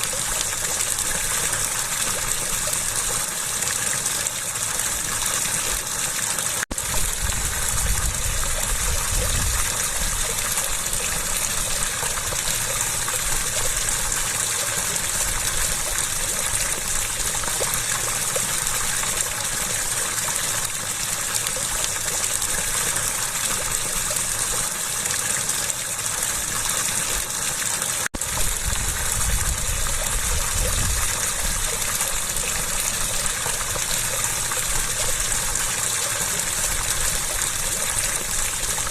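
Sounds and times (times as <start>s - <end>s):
rushing stream water: 0.0s - 38.9s.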